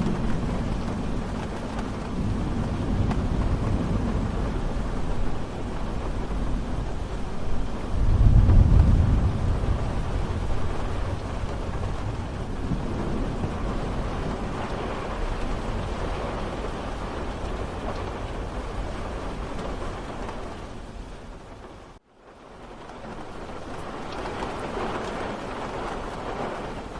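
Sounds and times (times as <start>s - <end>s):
low thunder rumble: 0.0s - 22.0s
rain falling: 0.0s - 26.9s.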